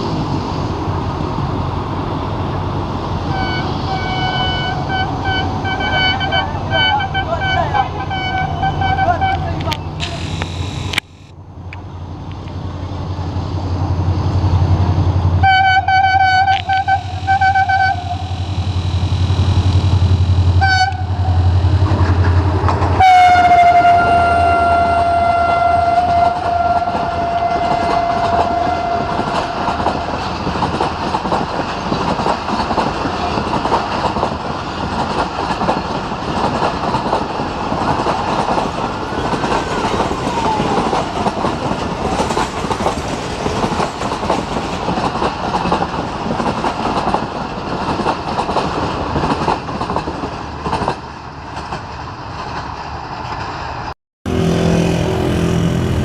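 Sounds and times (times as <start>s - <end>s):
diesel locomotive engine humming: 0.0s - 56.0s
train horn blasts: 3.3s - 11.0s, 15.4s - 19.4s, 20.5s - 21.6s, 22.9s - 30.1s, 54.3s - 56.0s
train wheels clickety-clack: 21.6s - 23.0s, 25.8s - 53.9s.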